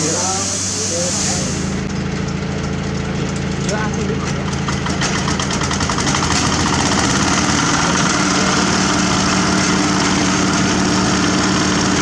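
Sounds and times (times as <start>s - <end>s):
paving machine diesel engine running: 0.0s - 12.0s.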